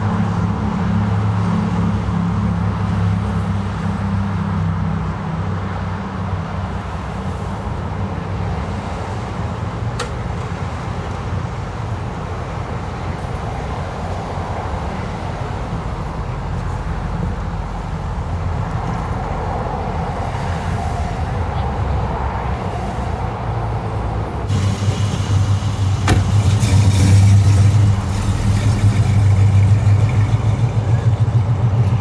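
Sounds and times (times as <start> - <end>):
car engine rumbling: 6.5 - 32.0
sharp click: 10.0 - 10.4.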